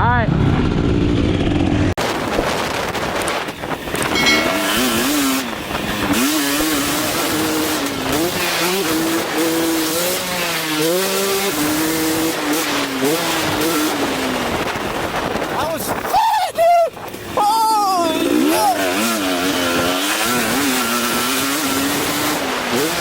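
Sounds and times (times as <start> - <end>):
dirt bike engine revving: 3.7 - 15.6, 17.1 - 23.0.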